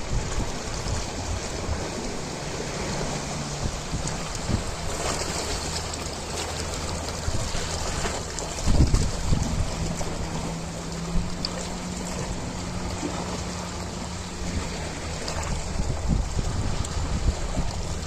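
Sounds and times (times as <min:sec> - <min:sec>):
ocean waves surging: 0:00.0 - 0:18.0.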